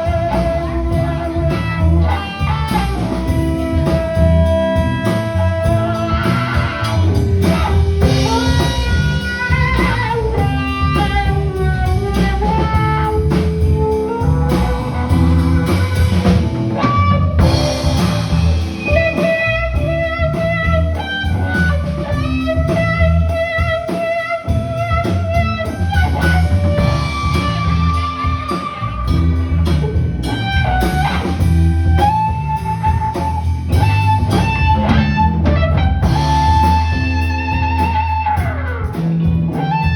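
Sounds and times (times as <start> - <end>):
bass: 0.0 - 39.9
drums: 0.0 - 39.9
lead guitar bending notes: 0.0 - 39.9.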